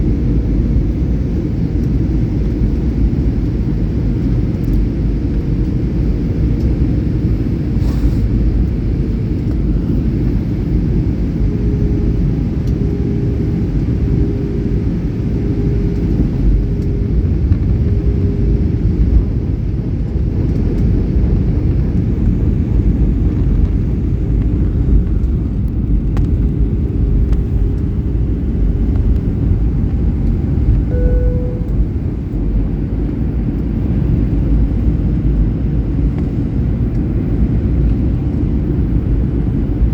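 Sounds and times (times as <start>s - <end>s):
jet engines rumbling: 0.0s - 39.9s
wavering engine tone: 11.4s - 19.2s, 30.8s - 33.6s.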